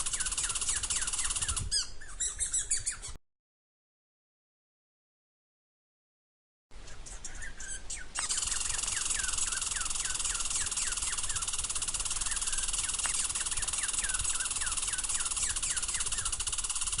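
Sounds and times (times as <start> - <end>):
squirrel chirping: 0.0 - 3.2, 6.8 - 17.0.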